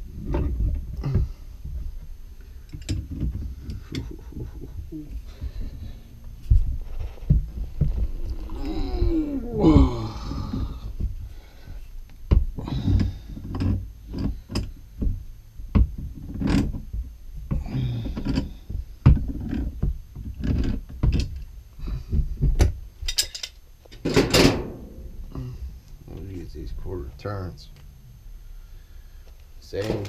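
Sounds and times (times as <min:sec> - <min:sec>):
hand tools and metal fittings clanking: 0:02.7 - 0:04.4, 0:12.7 - 0:14.8, 0:22.6 - 0:24.6.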